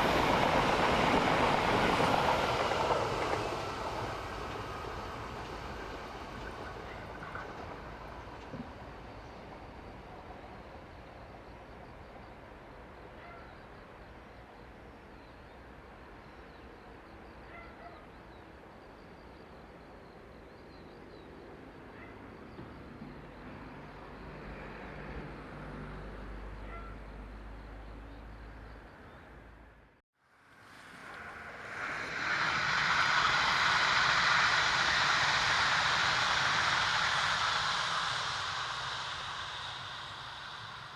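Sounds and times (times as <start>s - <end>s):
low rumble: 30.9s - 40.9s.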